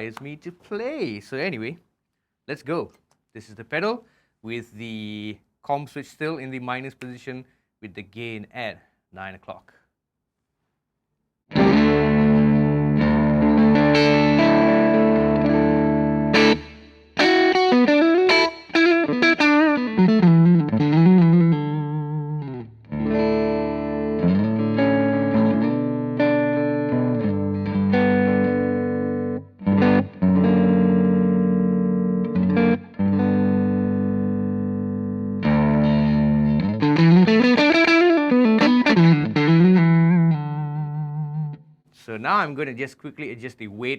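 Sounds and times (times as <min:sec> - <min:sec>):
overdriven electric guitar: 0:11.5 - 0:41.7.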